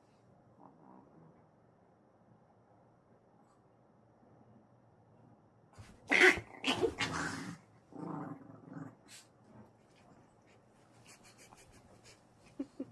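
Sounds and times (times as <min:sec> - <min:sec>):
puppy growling: 0:00.5 - 0:01.6, 0:06.1 - 0:10.5.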